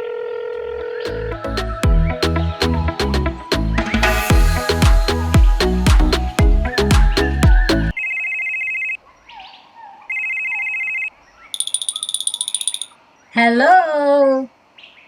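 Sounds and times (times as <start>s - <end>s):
background music: 1.1s - 7.9s
telephone ringtone: 7.9s - 9.0s, 10.1s - 13.0s
high trilling ring: 11.6s - 13.0s.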